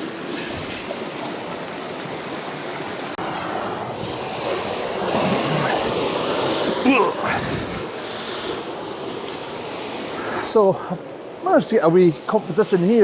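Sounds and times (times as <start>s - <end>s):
waterfall and stream rushing: 0.0s - 13.0s.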